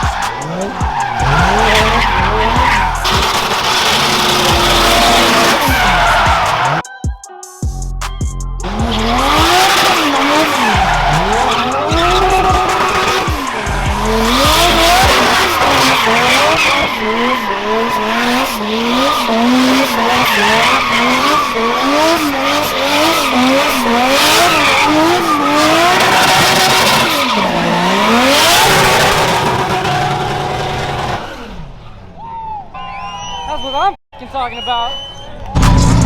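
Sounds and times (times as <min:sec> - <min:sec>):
engine revving: 0:00.0 - 0:06.9, 0:08.6 - 0:31.7, 0:35.6 - 0:36.0
tyres squealing: 0:00.0 - 0:06.9, 0:08.7 - 0:30.4.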